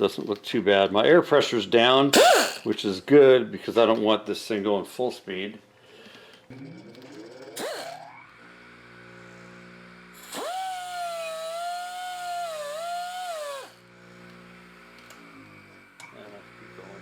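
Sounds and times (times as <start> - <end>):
air buffing tool whine: 2.2 - 2.6, 7.6 - 17.0.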